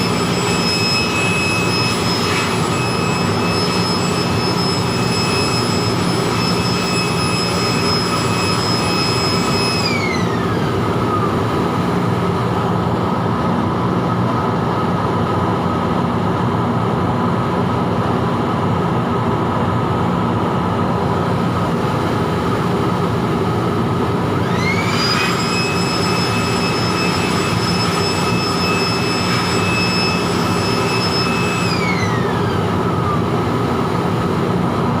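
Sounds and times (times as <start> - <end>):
electric air blower whining: 0.0 - 14.2, 21.2 - 35.0.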